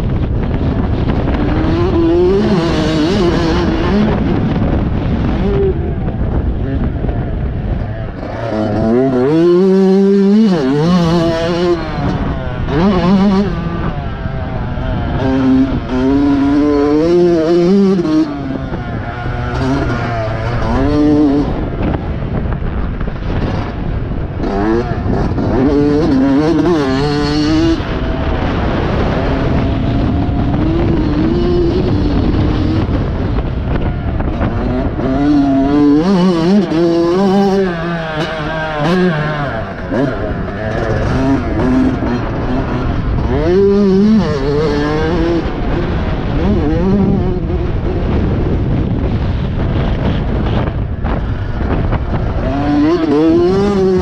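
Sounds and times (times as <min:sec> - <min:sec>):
motocross bike engine: 0:00.0 - 0:54.0.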